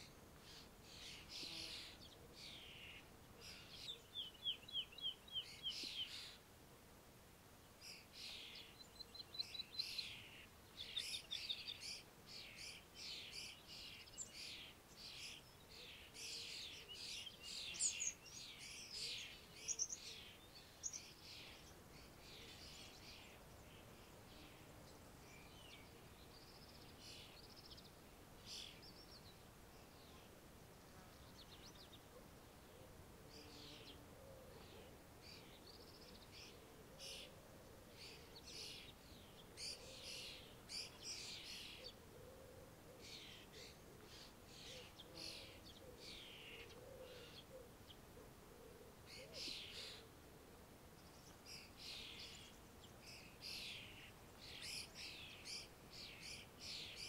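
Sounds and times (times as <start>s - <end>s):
songbirds chirping: 0.0s - 57.0s
faint low bird calls: 7.8s - 50.2s.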